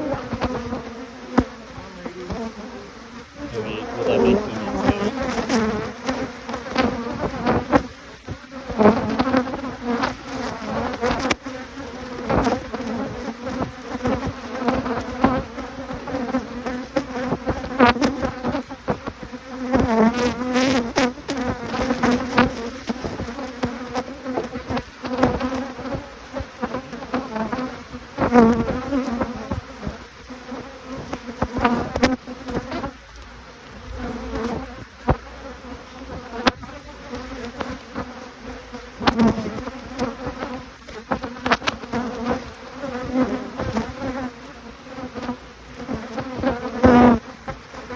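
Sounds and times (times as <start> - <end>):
bees buzzing: 0.0 - 17.4.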